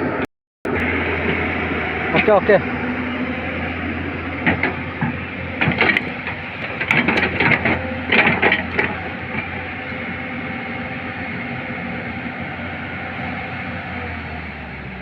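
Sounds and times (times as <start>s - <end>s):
excavator engine running: 0.0s - 15.0s
track chain metal clanks: 4.3s - 9.7s.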